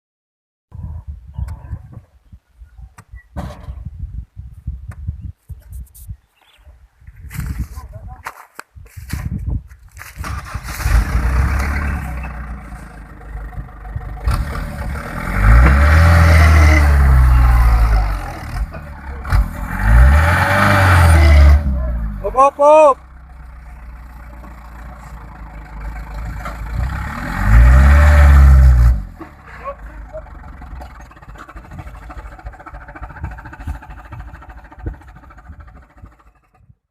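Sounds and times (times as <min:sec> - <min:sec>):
truck engine idling and revving: 0:09.9 - 0:36.9.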